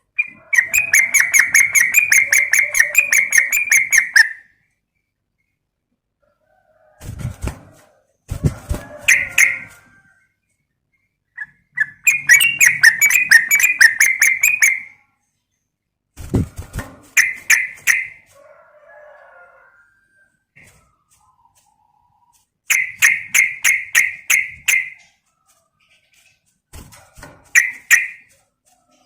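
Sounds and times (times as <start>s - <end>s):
bulbul calling: 0.1s - 4.4s, 11.4s - 15.0s, 22.7s - 25.1s, 27.6s - 28.2s.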